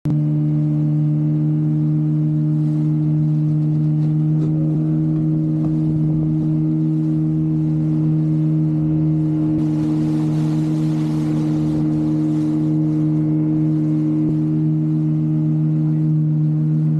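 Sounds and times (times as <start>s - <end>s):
boat engine humming: 0.0s - 16.9s.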